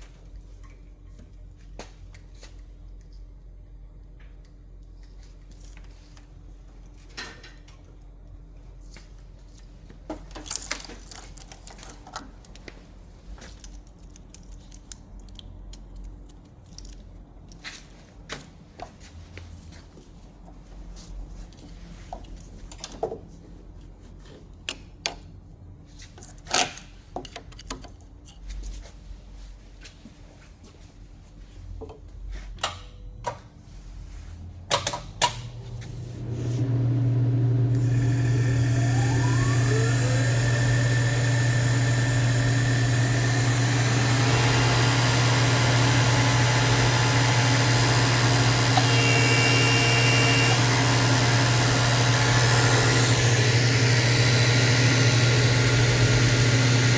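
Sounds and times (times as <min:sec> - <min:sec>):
clicks and knocks of handled parts: 0:06.8 - 0:19.1, 0:21.5 - 0:29.0, 0:34.7 - 0:35.5
machine motor hum and whine: 0:35.6 - 0:56.9.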